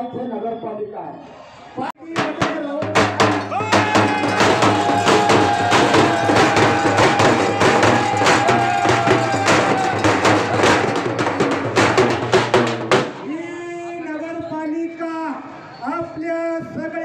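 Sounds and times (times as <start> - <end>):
frame drums beaten fast: 2.0 - 13.7.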